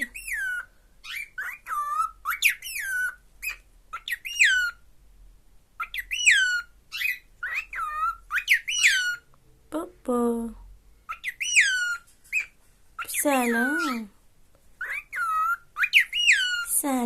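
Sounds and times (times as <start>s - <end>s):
cockatiel whistled calls: 0.0s - 4.8s, 5.8s - 9.3s, 11.1s - 13.1s, 14.8s - 16.7s.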